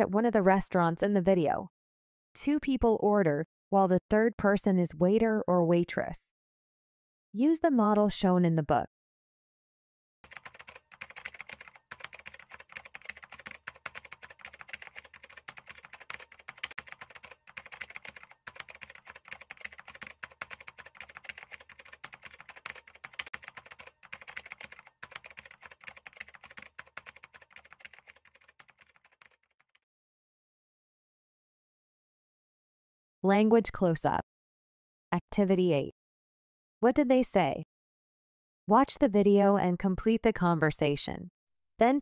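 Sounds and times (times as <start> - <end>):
keyboard typing: 10.2 - 29.8.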